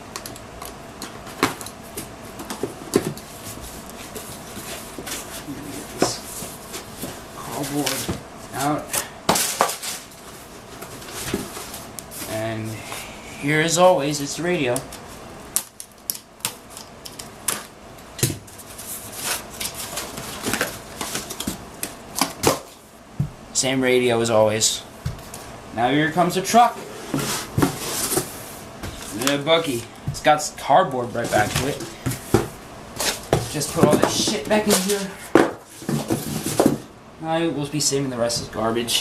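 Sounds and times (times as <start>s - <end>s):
packaging rustling and clicking: 18.5s - 22.7s
cardboard packaging knocks and scrapes: 27.0s - 29.2s, 31.2s - 36.9s.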